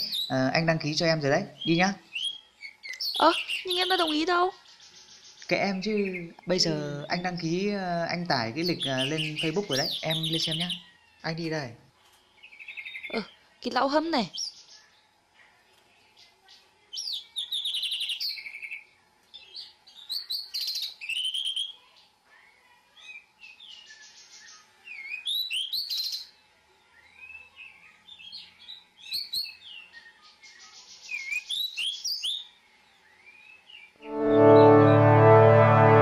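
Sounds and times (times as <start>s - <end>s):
songbird singing chirps and trills: 0.0s - 35.2s
loud music: 34.0s - 36.0s.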